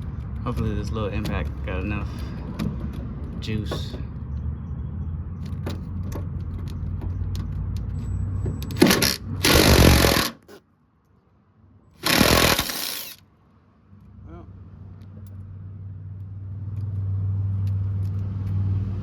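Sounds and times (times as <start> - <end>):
impact wrench hammering bolt: 8.7 - 10.5, 12.0 - 13.2.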